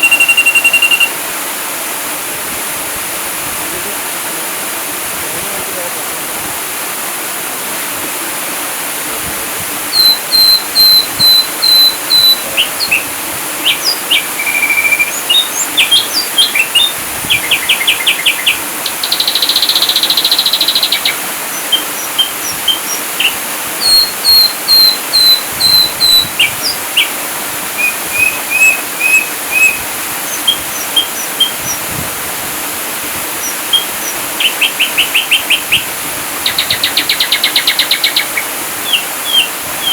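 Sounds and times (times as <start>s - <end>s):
bird song whistles and trills: 0.0s - 1.2s, 9.9s - 27.2s, 27.8s - 31.9s, 33.4s - 39.9s
running water hiss: 0.0s - 39.9s.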